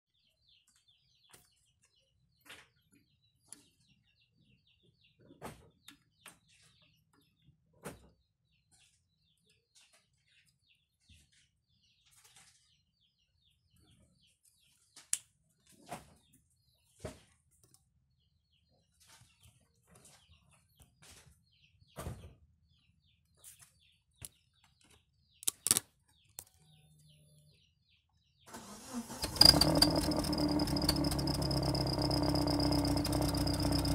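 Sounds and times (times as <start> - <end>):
small birds chirping: 0.1 - 33.9
car engine: 28.5 - 33.9.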